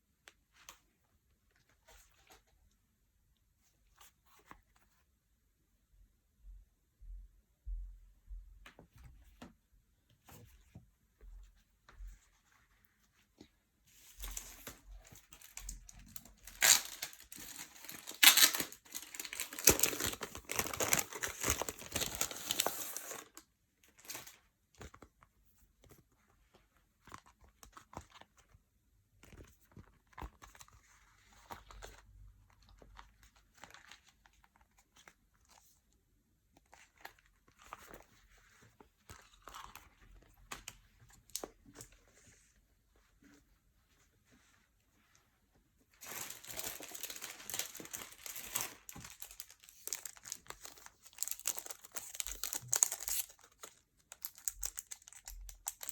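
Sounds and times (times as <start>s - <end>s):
packaging tearing and rustling: 14.2s - 23.4s, 46.0s - 55.9s.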